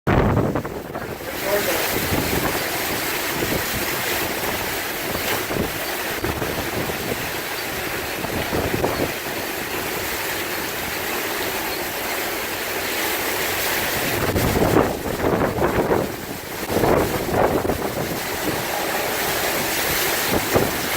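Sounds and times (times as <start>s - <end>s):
strong wind rushing: 0.1s - 9.2s, 14.0s - 20.9s
wind buffeting microphone: 0.1s - 20.9s.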